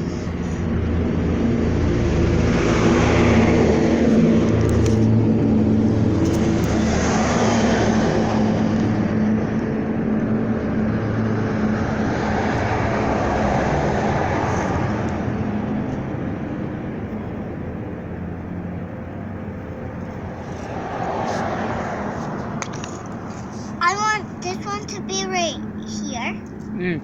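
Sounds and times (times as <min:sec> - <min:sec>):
engine rumbling past: 0:00.0 - 0:27.0.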